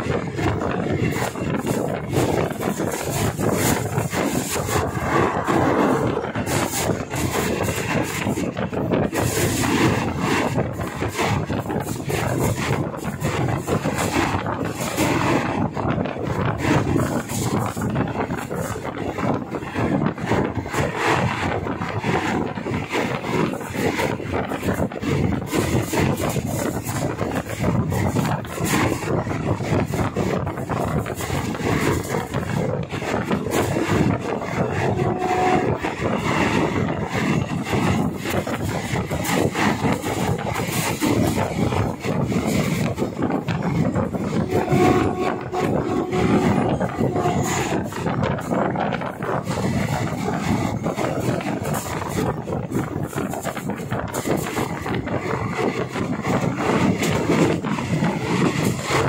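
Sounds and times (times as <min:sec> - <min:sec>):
train wheels rumbling on rails: 0:00.0 - 0:59.0
wind noise: 0:00.0 - 0:59.0.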